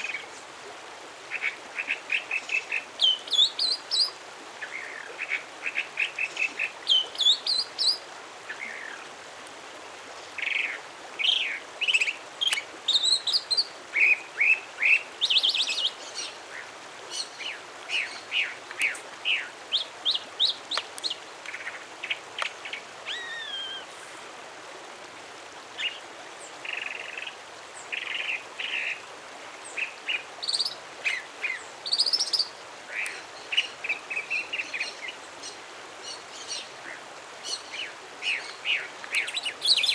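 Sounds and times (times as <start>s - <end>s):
background hiss: 0.0s - 39.9s
songbird singing: 1.4s - 9.0s, 10.4s - 24.0s, 29.6s - 39.9s.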